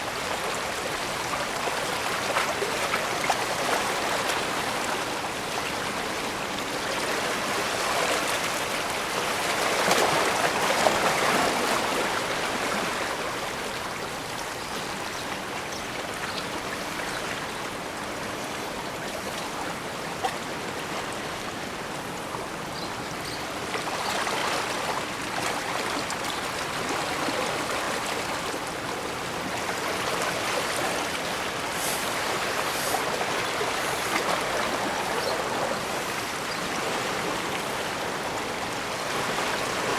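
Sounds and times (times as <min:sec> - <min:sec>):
water washing on shore: 0:23.8 - 0:39.9.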